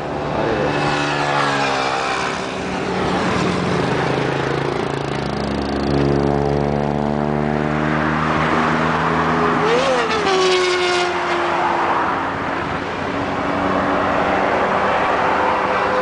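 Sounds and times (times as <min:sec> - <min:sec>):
motorcycle engine running: 0:03.3 - 0:07.2.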